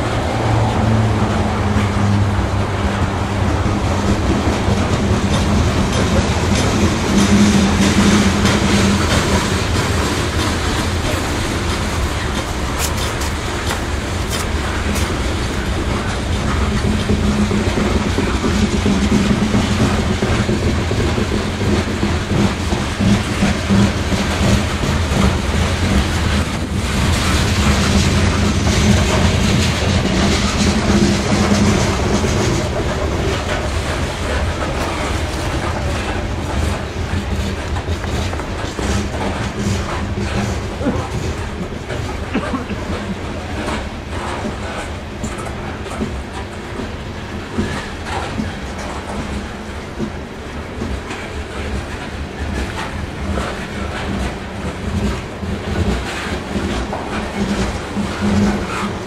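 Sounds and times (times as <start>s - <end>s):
steel wheels rumbling on rail: 0.0s - 59.0s
wheels clacking over rail joints: 0.0s - 59.0s.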